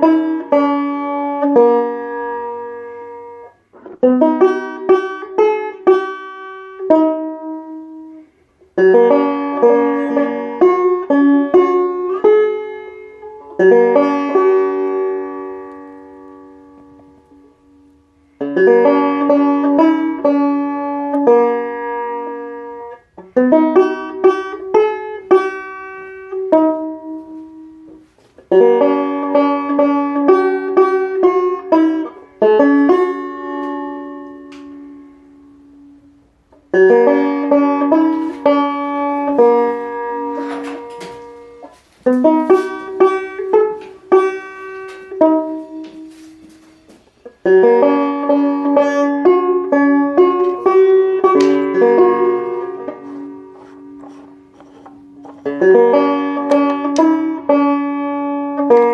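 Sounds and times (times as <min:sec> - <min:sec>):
plucked string instrument: 0:00.0 - 0:58.9.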